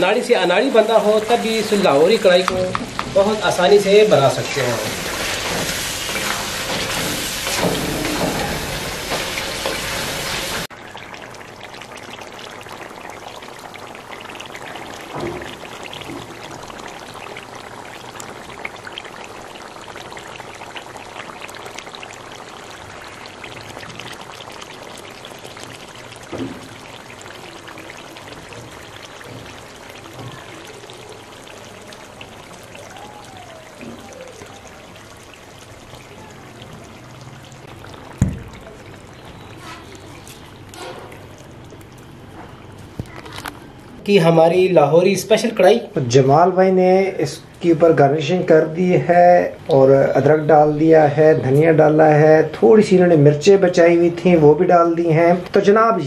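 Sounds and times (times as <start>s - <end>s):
food sizzling in oil: 0.0s - 43.7s
bubbling gravy crackling: 0.0s - 56.0s.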